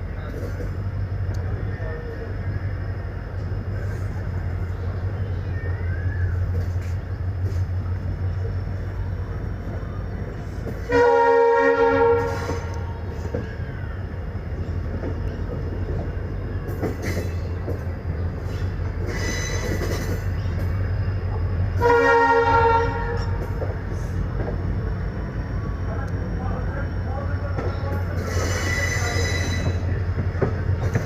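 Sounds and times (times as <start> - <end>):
train coach rumbling on track: 0.0 - 31.0
train horn blasts: 10.8 - 13.0, 21.7 - 23.5.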